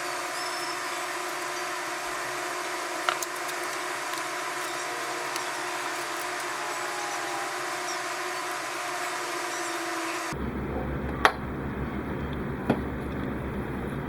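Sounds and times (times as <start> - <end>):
steady hiss: 0.0 - 10.4
faint machine hum: 0.0 - 14.0.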